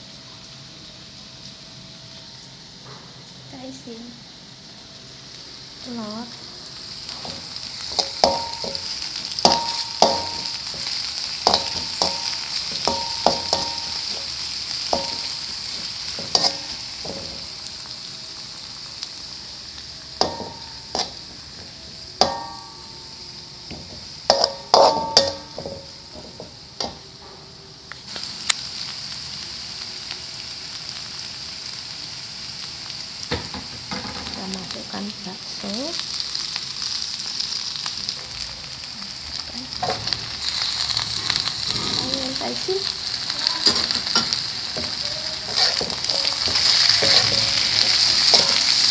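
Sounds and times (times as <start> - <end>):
food sizzling in hot oil: 0.0 - 48.9
spatula clinking against pan: 24.3 - 25.8.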